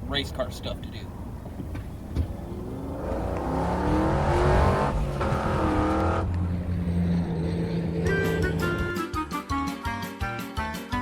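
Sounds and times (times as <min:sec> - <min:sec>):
car engine accelerating hard: 0:02.2 - 0:08.8.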